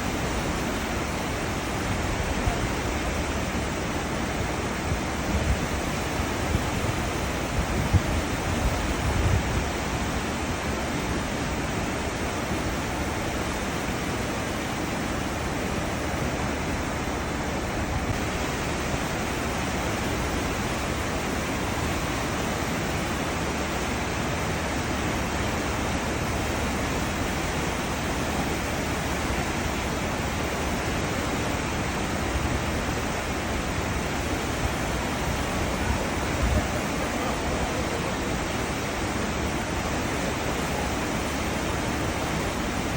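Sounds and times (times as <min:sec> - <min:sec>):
churning foaming seawater: 0:00.0 - 0:42.9
wind buffeting microphone: 0:04.7 - 0:10.1.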